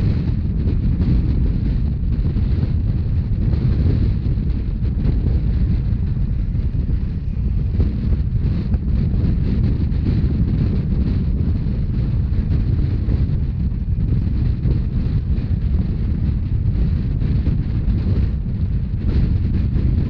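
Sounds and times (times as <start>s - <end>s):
train rumbling at speed: 0.0s - 20.0s
wind buffeting microphone: 0.0s - 20.0s.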